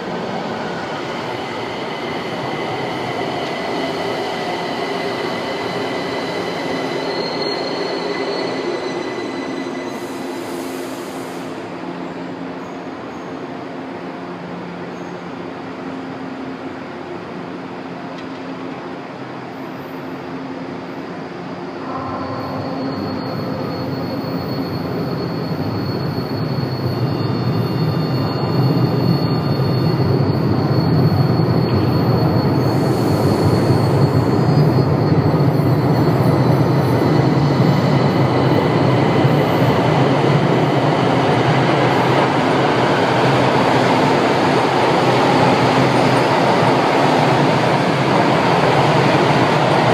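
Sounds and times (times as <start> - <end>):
metro train rumble: 0.0 - 49.9
high wheel squeal: 2.1 - 11.4, 21.8 - 49.1.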